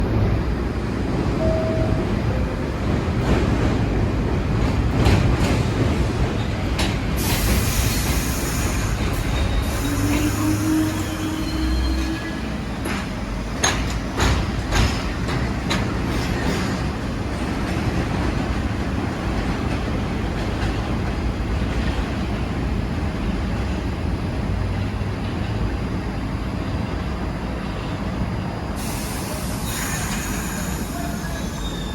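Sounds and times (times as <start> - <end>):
subway train rumble: 0.0 - 31.9
wheels clacking over rail joints: 2.7 - 10.4, 12.6 - 22.3
burst of hiss: 7.2 - 10.6, 28.8 - 31.4.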